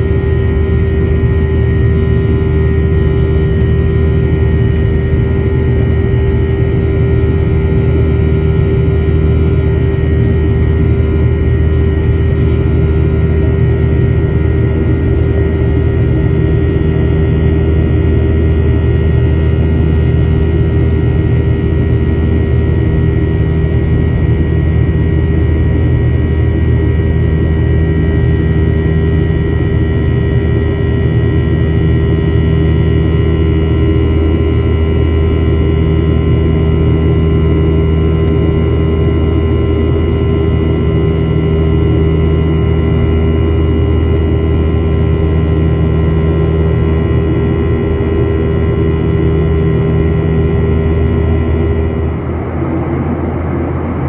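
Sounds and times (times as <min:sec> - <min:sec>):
jet engines droning: 0:00.0 - 0:54.0
faint whining tones: 0:47.0 - 0:54.0.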